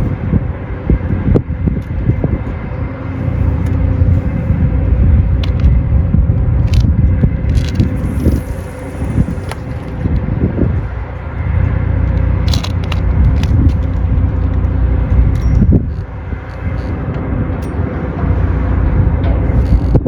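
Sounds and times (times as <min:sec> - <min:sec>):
wind buffeting microphone: 0:00.0 - 0:20.0
sharp clicks: 0:12.1 - 0:14.0.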